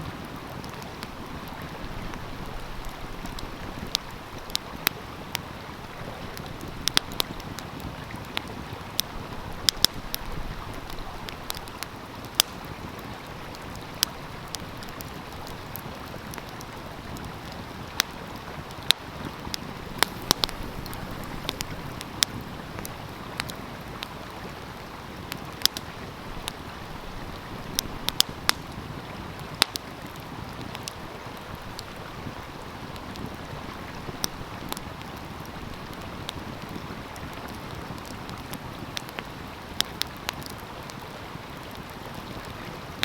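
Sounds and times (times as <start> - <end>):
wood fire crackling: 0.1 - 43.0
stream rushing: 17.0 - 29.3.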